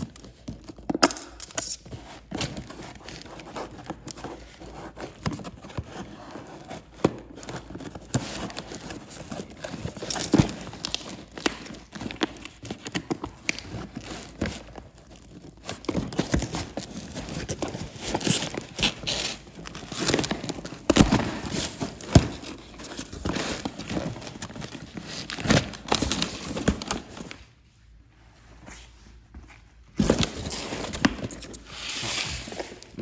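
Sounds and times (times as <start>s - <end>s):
cardboard parcel being torn open: 5.1s - 27.4s.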